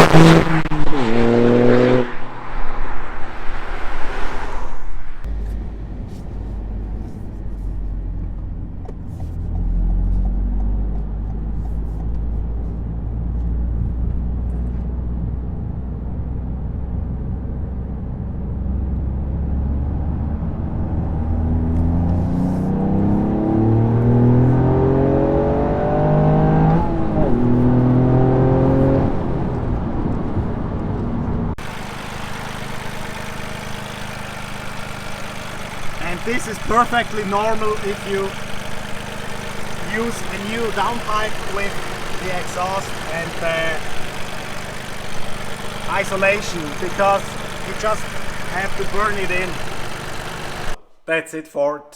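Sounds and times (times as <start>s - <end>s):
noisy scene: 0.0s - 7.6s
car engine revving: 0.0s - 14.5s, 18.6s - 50.8s.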